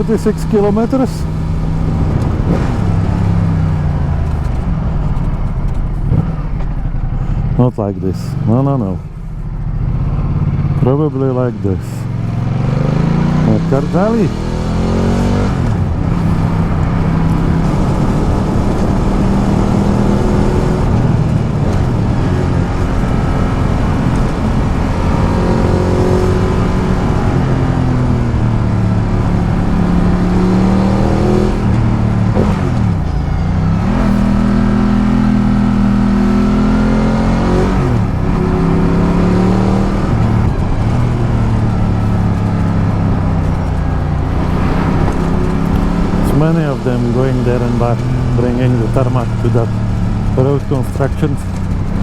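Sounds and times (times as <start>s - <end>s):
motorcycle engine accelerating: 0.0s - 52.0s.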